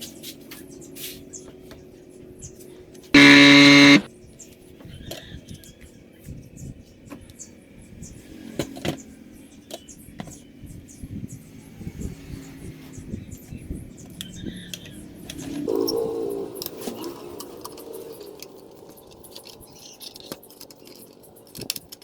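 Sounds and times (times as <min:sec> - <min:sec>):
loud buzzy beep: 0:03.2 - 0:04.1.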